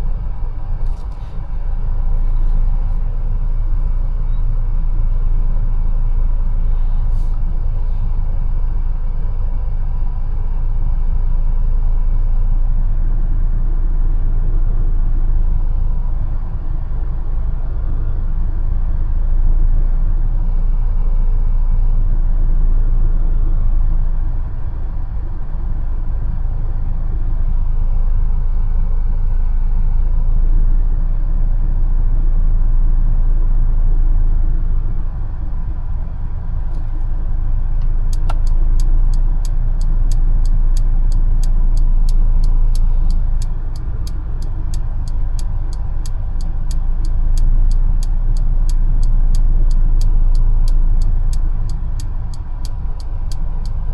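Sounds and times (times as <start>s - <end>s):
car engine and road noise: 0.0s - 53.9s
turn indicator ticking: 37.8s - 53.9s.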